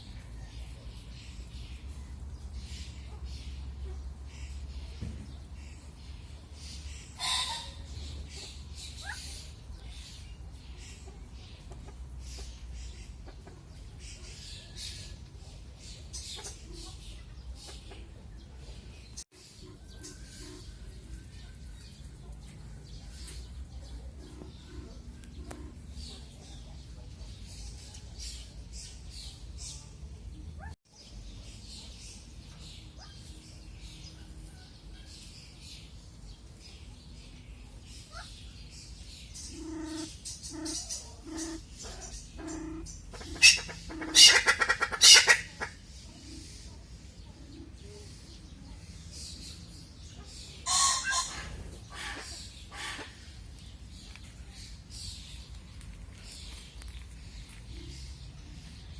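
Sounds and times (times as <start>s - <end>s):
small birds chirping: 0.0s - 58.9s
hen clucking: 7.1s - 8.6s, 39.4s - 45.8s, 50.6s - 53.4s
hen squawking cackle: 42.4s - 45.8s, 50.7s - 53.2s.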